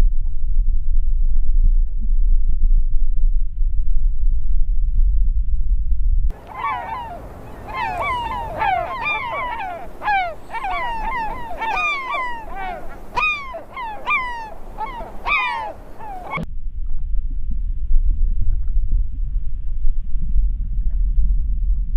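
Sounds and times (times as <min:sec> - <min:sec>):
flock of birds honking: 0:06.4 - 0:16.4.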